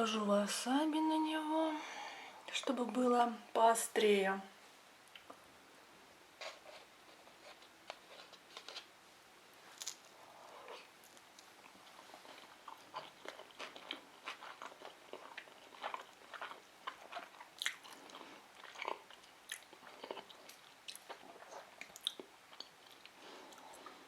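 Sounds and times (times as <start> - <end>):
wet chewing clicks and smacks: 11.3 - 23.9.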